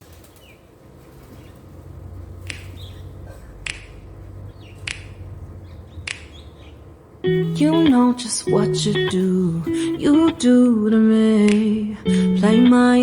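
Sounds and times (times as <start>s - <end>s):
birds chirping: 5.6s - 10.6s.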